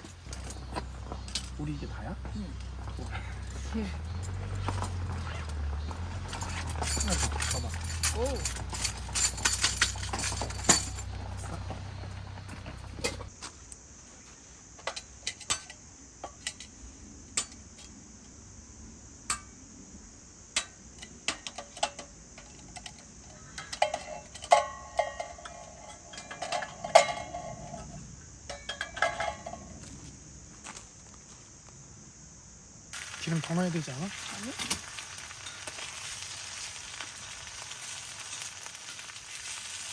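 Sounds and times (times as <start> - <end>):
dishes and cutlery clinking: 23.6 - 27.8.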